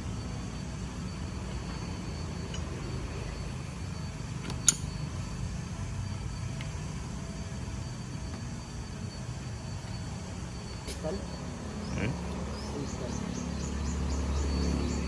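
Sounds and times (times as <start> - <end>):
low hum with high whine: 0.0 - 15.0
sharp metallic click: 4.4 - 4.9.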